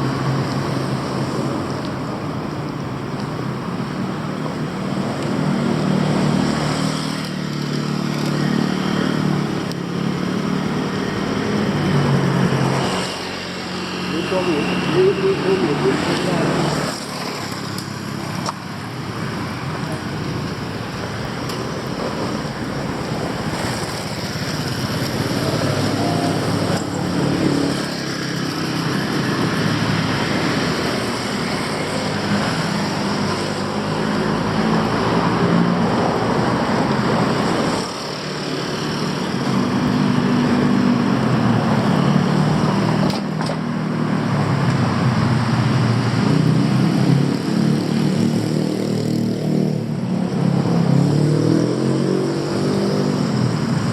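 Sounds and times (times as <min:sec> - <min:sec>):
city street traffic: 0:00.0 - 0:53.9
nearby engine: 0:10.4 - 0:17.9, 0:23.4 - 0:43.2.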